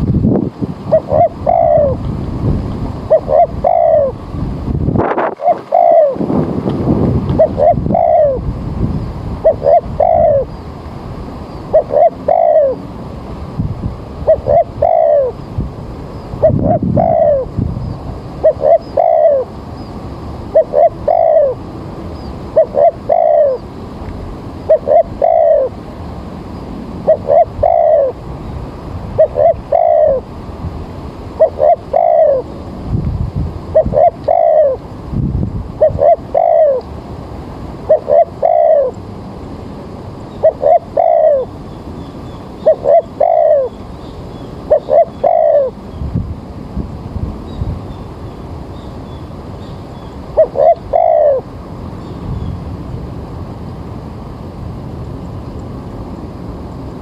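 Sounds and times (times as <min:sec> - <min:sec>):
steady background hiss: 0:00.0 - 0:57.0
dove cooing: 0:00.9 - 0:02.1, 0:03.0 - 0:04.3, 0:05.1 - 0:06.4, 0:07.3 - 0:08.5, 0:09.4 - 0:10.6, 0:11.7 - 0:12.9, 0:14.2 - 0:15.4, 0:16.4 - 0:17.6, 0:18.4 - 0:19.6, 0:20.5 - 0:21.6, 0:22.5 - 0:23.7, 0:24.6 - 0:25.8, 0:27.0 - 0:28.2, 0:29.2 - 0:30.4, 0:31.4 - 0:32.6, 0:33.7 - 0:34.9, 0:35.8 - 0:36.9, 0:37.8 - 0:39.0, 0:40.3 - 0:41.5, 0:42.6 - 0:43.8, 0:44.6 - 0:45.8, 0:50.3 - 0:51.5.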